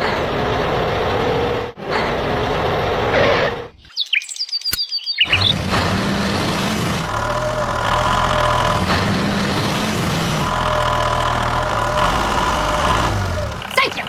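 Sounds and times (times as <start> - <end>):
high bird-like chirps: 3.8 - 5.5
vehicle engine running: 5.3 - 14.0.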